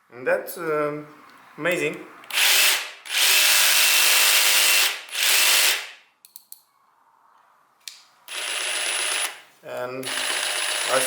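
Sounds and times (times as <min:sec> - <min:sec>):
jigsaw running: 0:02.3 - 0:05.9, 0:08.3 - 0:09.4, 0:10.0 - 0:11.0.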